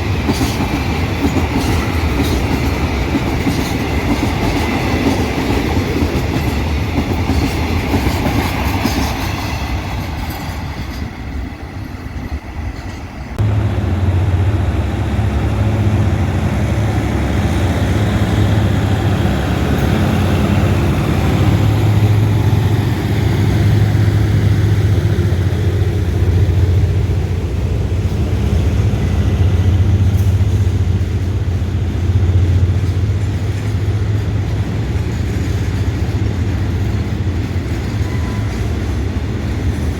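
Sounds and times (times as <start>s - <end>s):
train wheels clattering: 0.0s - 13.4s, 14.0s - 39.9s
diesel locomotive engine running: 11.3s - 39.9s.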